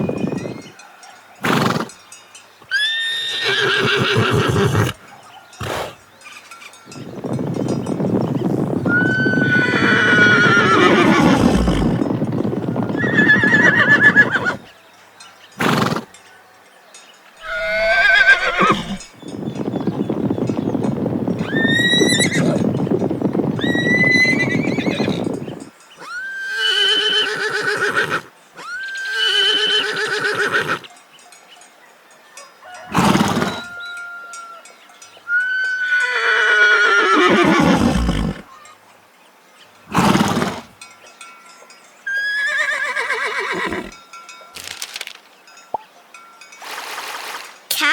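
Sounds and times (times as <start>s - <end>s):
horses neighing: 1.4s - 2.0s, 2.7s - 6.1s, 8.9s - 14.7s, 15.6s - 16.1s, 17.4s - 19.1s, 21.4s - 22.6s, 23.6s - 25.2s, 26.0s - 30.9s, 32.8s - 33.8s, 35.3s - 38.5s, 39.9s - 40.8s, 42.1s - 44.0s.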